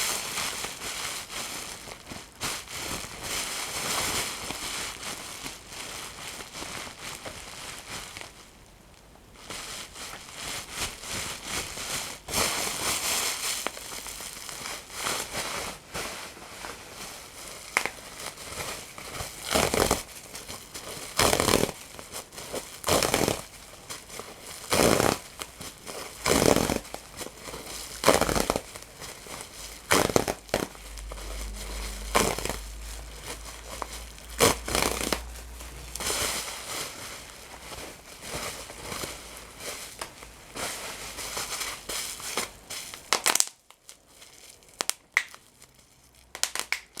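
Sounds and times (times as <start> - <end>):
material being crumpled: 0.0 - 47.0
sharp loud crunches: 29.8 - 36.3.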